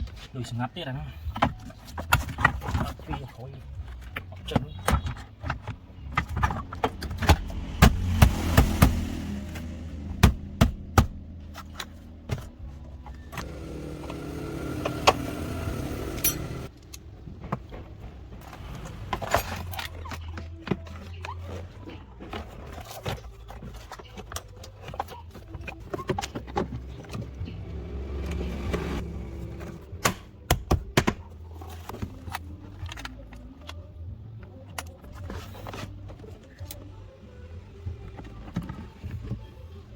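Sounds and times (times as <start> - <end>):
hand tools clanking and clicking: 13.3 - 17.0.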